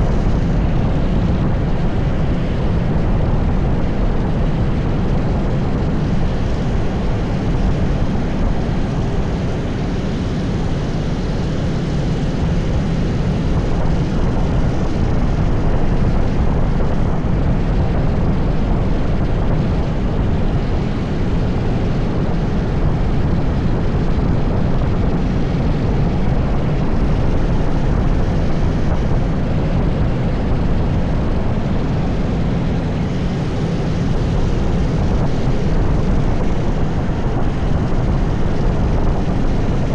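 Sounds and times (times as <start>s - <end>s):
go-kart engine drone: 0.0s - 39.9s
wind noise: 0.0s - 39.9s.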